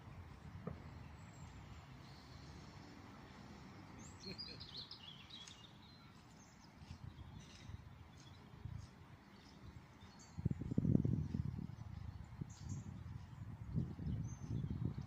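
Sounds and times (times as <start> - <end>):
bird chirping: 3.7 - 8.5.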